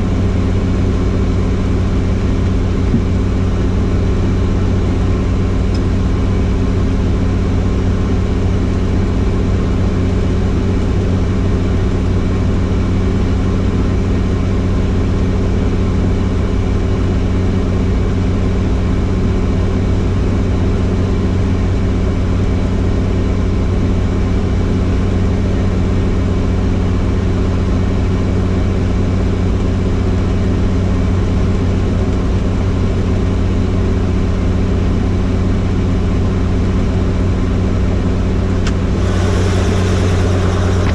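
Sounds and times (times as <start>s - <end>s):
helicopter running: 38.6s - 40.9s.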